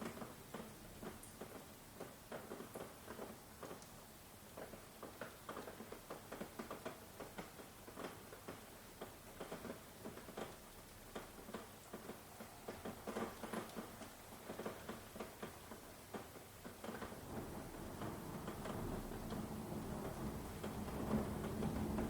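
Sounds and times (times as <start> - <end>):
rain pattering: 0.0 - 22.0.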